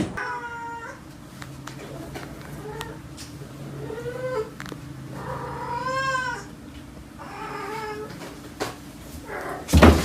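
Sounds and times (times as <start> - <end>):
cat meowing: 0.2 - 1.1, 3.8 - 6.6.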